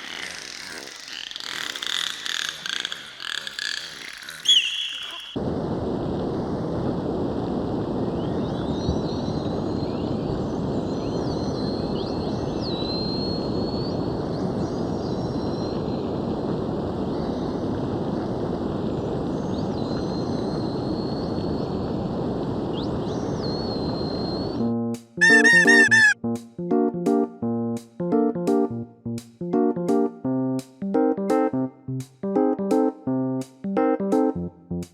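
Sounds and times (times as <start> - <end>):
dolphin whistles: 4.4 - 5.4, 25.2 - 26.2.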